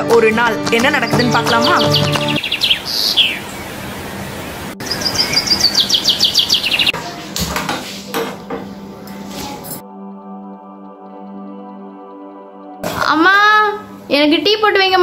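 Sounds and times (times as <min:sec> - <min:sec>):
songbird chirping: 0:00.7 - 0:07.0.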